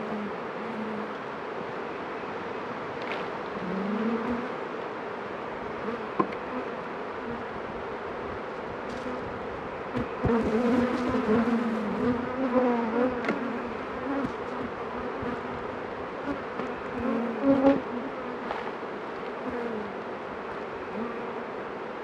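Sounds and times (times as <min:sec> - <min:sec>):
honeybees buzzing: 0:03.5 - 0:04.7, 0:08.9 - 0:21.6.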